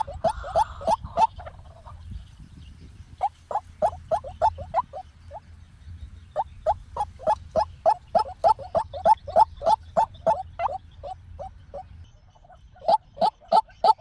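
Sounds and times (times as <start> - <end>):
waterhen calling rising notes: 3.2 - 5.0.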